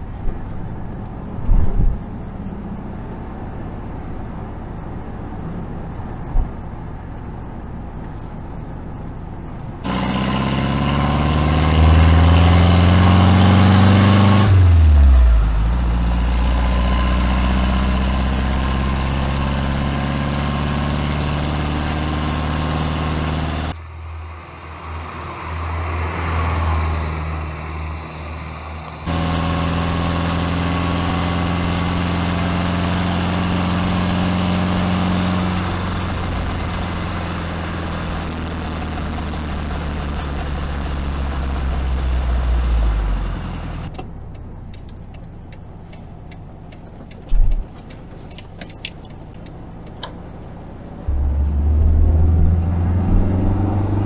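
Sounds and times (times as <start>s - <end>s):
car engine running: 5.8s - 23.8s, 29.0s - 54.0s.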